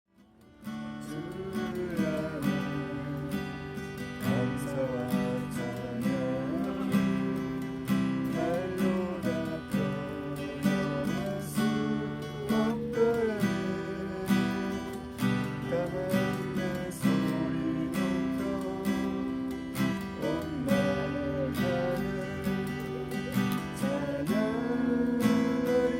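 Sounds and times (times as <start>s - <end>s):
acoustic guitar strumming: 0.2s - 25.9s.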